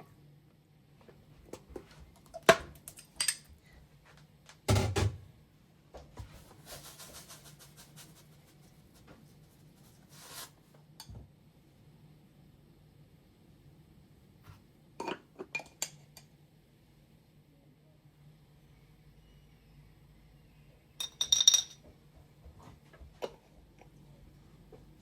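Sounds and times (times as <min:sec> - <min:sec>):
faint low hum: 0:16.1 - 0:25.0.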